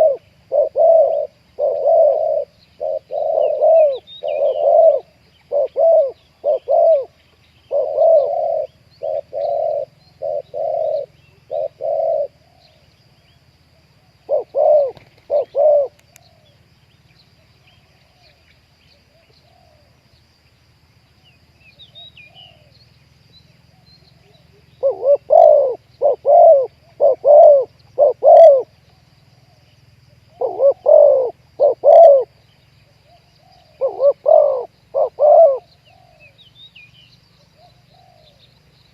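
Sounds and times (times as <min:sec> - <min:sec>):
dove cooing: 0:00.0 - 0:12.9, 0:13.8 - 0:16.6, 0:21.9 - 0:22.8, 0:23.7 - 0:36.4, 0:37.4 - 0:38.9
small birds chirping: 0:00.0 - 0:38.9.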